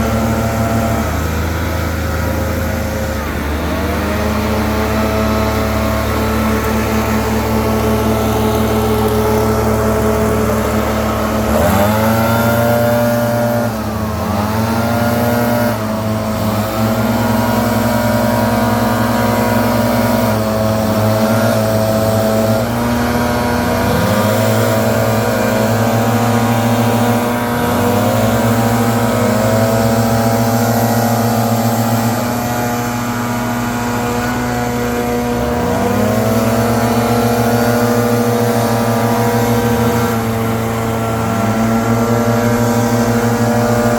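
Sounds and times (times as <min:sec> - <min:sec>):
leaf blower engine running: 0:00.0 - 0:43.9.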